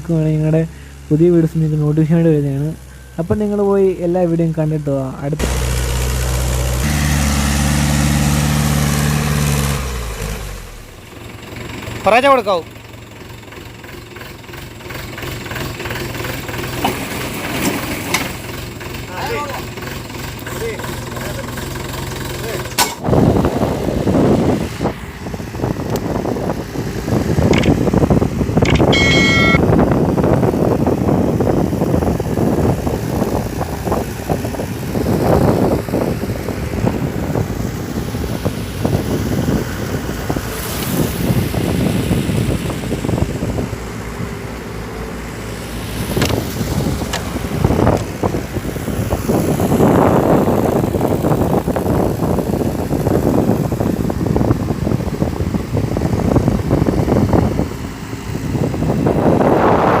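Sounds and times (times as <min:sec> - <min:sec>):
tractor diesel engine running: 0:00.0 - 1:00.0
wind noise on microphone: 0:22.6 - 1:00.0.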